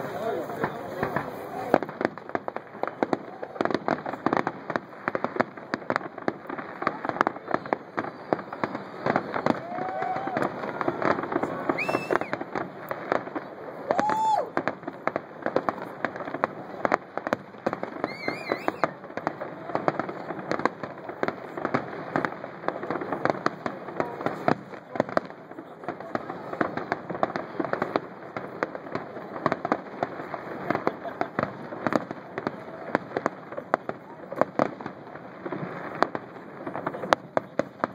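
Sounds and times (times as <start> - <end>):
fireworks banging and crackling: 0.0 - 37.9
rising and falling whistles: 11.8 - 12.3, 18.1 - 18.8.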